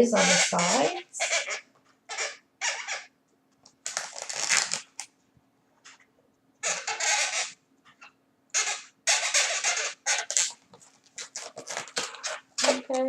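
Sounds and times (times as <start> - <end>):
balloon rubbed scratchily: 0.0 - 3.1, 3.8 - 4.9, 6.6 - 7.6, 8.5 - 13.0.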